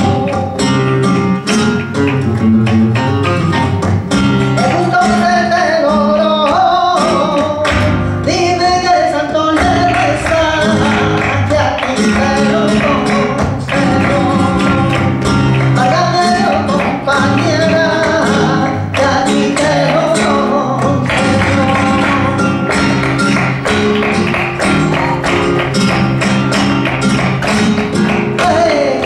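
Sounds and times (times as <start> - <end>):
person singing: 0.0 - 1.0, 4.6 - 23.0, 27.5 - 29.0
strummed acoustic guitar: 0.0 - 29.0.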